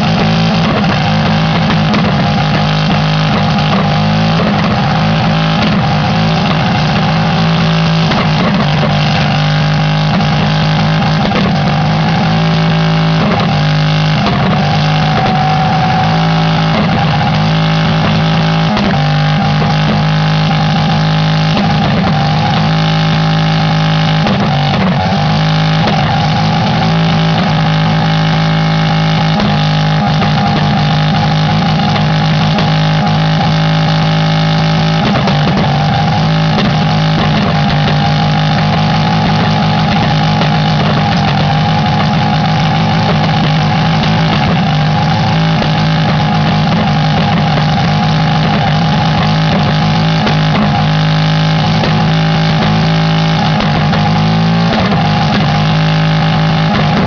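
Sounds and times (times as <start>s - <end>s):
engine revving high: 0.0s - 57.0s.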